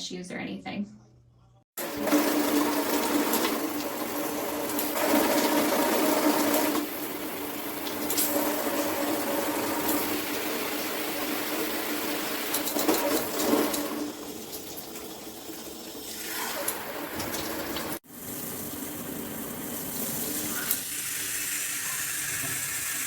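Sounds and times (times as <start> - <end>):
shower water spraying: 1.8 - 23.0.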